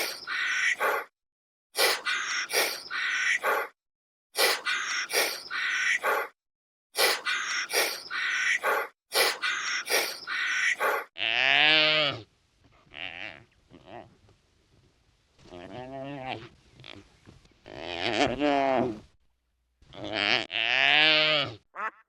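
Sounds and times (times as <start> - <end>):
animal making raspy calls: 0.0 - 1.1, 1.8 - 3.8, 4.4 - 6.4, 7.0 - 11.1
animal pitched call: 0.0 - 1.1, 4.6 - 6.3, 7.1 - 11.1.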